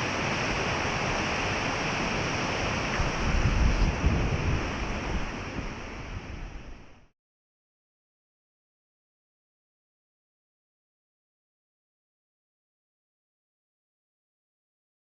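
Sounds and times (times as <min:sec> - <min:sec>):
wind buffeting microphone: 0:00.0 - 0:07.0
rushing wind: 0:00.0 - 0:07.1.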